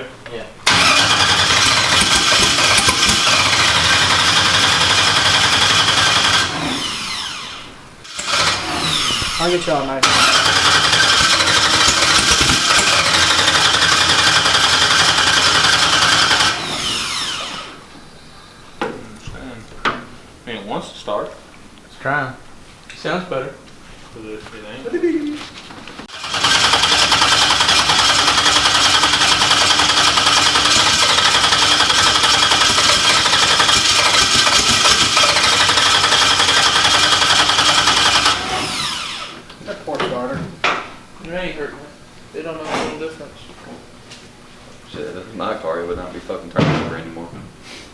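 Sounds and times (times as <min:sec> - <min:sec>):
engine cranking on starter: 0:00.6 - 0:17.8, 0:26.0 - 0:39.5
starter winding down whine: 0:00.6 - 0:17.9, 0:26.1 - 0:39.5.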